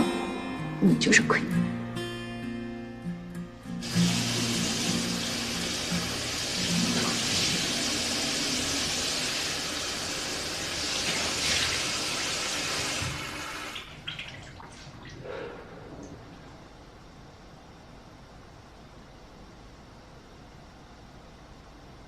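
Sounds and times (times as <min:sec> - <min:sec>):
running water: 0:03.8 - 0:16.6.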